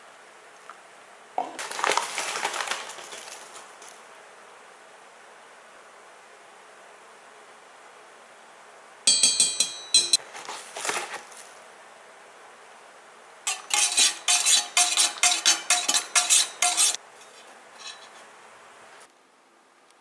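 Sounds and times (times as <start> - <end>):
metal spoon clinking against cup: 9.1 - 10.2, 13.5 - 17.0.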